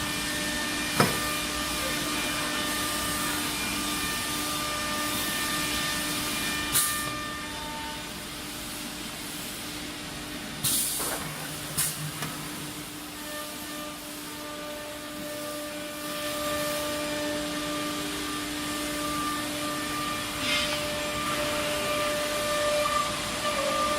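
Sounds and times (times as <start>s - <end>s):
cnc router humming: 0.0s - 8.2s, 11.4s - 23.9s
compressed air hisses: 10.6s - 13.2s.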